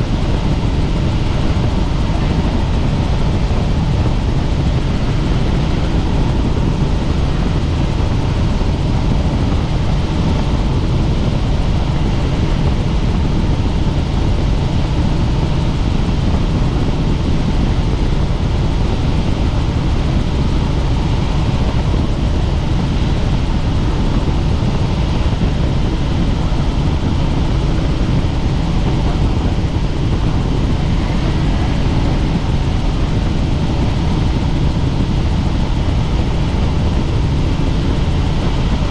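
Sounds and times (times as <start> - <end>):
helicopter rotor and engine drone: 0.0 - 38.9.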